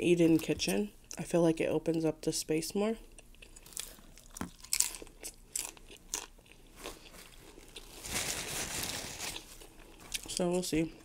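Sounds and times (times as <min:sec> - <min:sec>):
crunchy tortilla chewing: 0:03.1 - 0:08.2.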